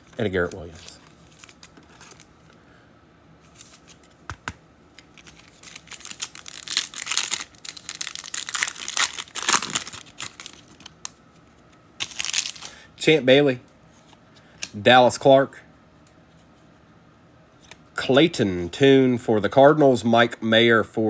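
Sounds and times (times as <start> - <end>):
foil wrapper tearing and crinkling: 5.0 - 11.2, 12.0 - 12.8.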